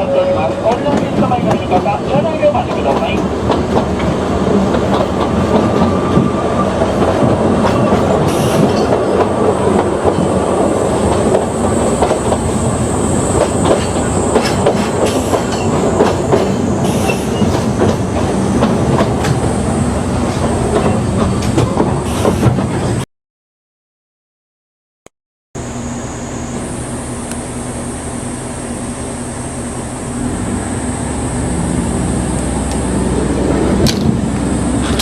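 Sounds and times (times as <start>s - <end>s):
train rumbling on track: 0.0s - 23.0s, 25.6s - 35.0s
wheels clacking over rails: 0.6s - 12.6s, 13.3s - 22.9s.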